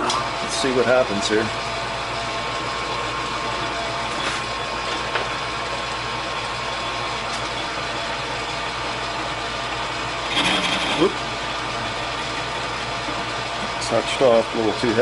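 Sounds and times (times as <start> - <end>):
metal lathe running: 5.7 - 15.0.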